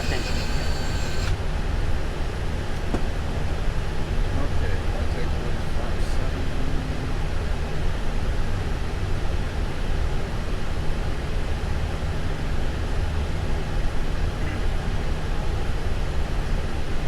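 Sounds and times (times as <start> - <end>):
low rumble and airflow hiss: 0.0 - 17.0.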